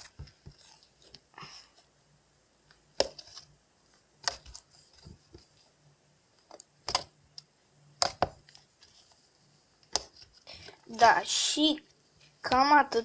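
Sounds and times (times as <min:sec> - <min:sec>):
sharp clicks and pops: 0:06.4 - 0:08.6.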